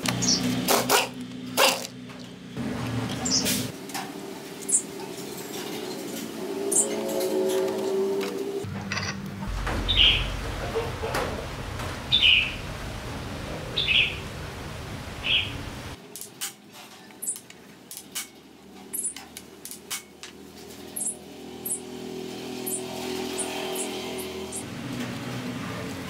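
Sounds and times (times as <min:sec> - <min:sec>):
birds chirping: 0:00.0 - 0:03.6, 0:04.6 - 0:08.6, 0:09.5 - 0:16.0, 0:16.9 - 0:20.2, 0:20.8 - 0:24.6
steady low hum: 0:08.6 - 0:16.0.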